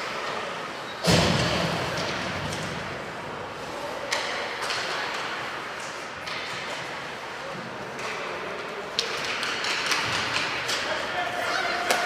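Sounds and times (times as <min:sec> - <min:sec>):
arena noise: 0:00.0 - 0:12.0
loud thump against rink boards: 0:01.0 - 0:02.8.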